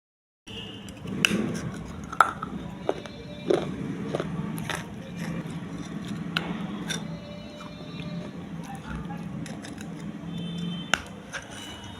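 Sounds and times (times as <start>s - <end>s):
steady low hum: 1.0s - 11.0s
crisp cracks of chewing clay: 3.0s - 7.0s.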